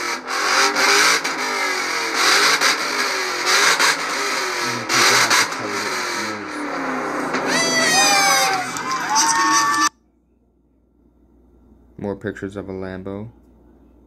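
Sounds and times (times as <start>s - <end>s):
car engines revving: 0.0s - 9.9s.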